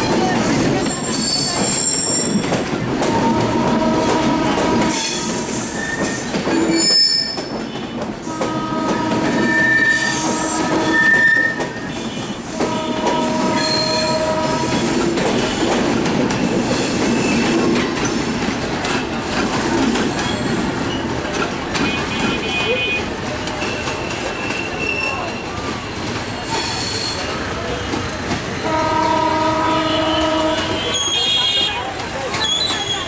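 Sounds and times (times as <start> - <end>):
train rumbling on rails: 0.0 - 33.0
train wheels squealing: 0.1 - 2.6, 4.9 - 8.4, 9.2 - 12.6, 13.2 - 15.8, 16.4 - 18.2, 20.0 - 21.1, 23.6 - 27.7, 31.0 - 33.0.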